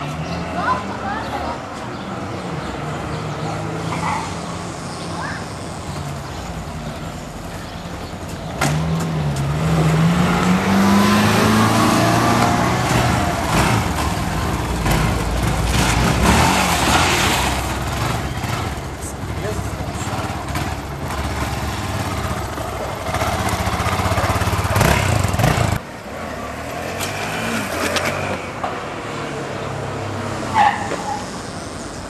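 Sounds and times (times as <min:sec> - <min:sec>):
motorcycle engine running and revving: 0:05.8 - 0:25.9.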